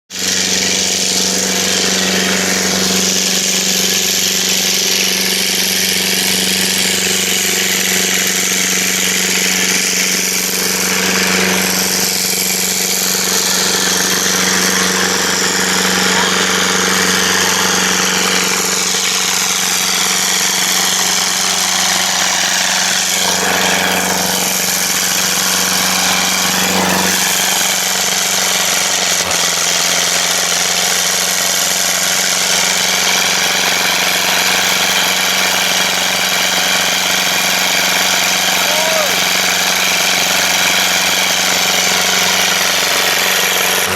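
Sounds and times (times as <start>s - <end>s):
tractor engine running: 0.0s - 43.9s
hiss: 16.9s - 43.9s.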